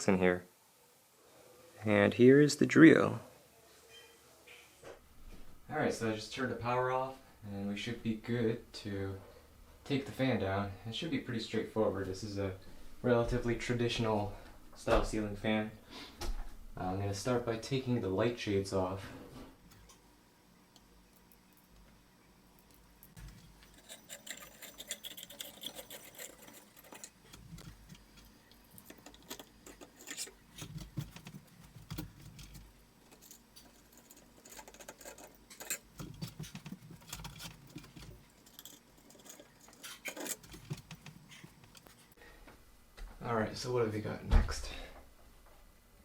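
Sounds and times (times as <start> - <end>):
light shades clinking and rattling: 22.6 - 42.2.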